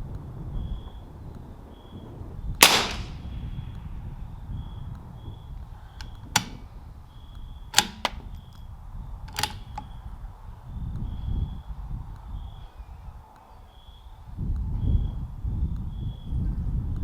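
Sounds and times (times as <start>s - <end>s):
wind rumble on microphone: 0.0s - 17.0s
rifle shots: 2.6s - 3.4s, 6.1s - 6.6s, 7.8s - 8.3s.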